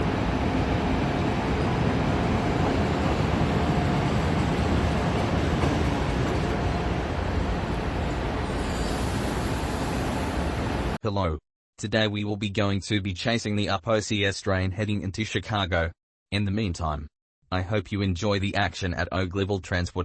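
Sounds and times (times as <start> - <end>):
train wheels rumbling on tracks: 0.0 - 11.0.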